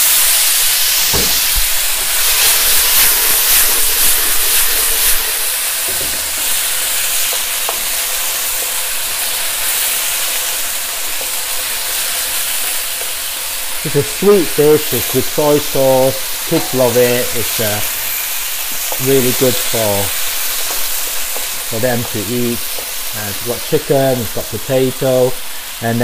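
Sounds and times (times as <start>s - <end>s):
potatoes sizzling in hot oil: 0.0s - 26.0s
single knock: 1.1s - 1.4s.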